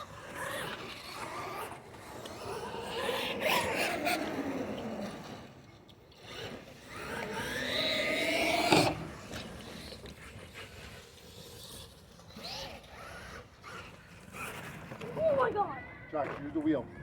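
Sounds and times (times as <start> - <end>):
toy truck motor whining: 6.2 - 15.6.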